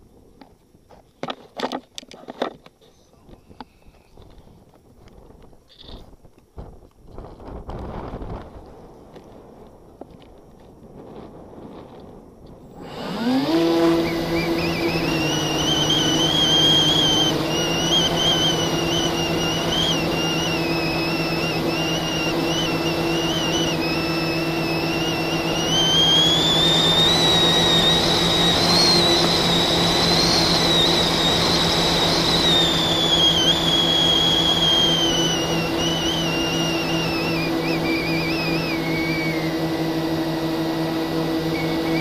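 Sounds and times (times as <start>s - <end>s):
constant low hum: 0.0s - 42.0s
drone motors whining: 12.6s - 42.0s.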